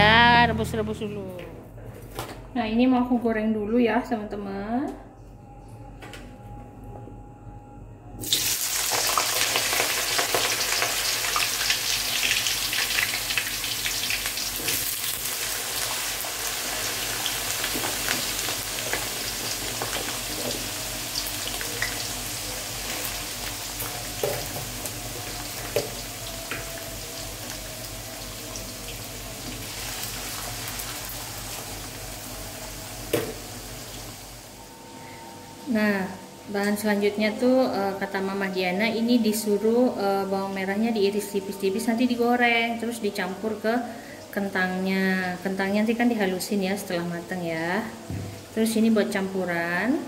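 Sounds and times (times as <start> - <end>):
potatoes sizzling in hot oil: 8.2 - 34.5.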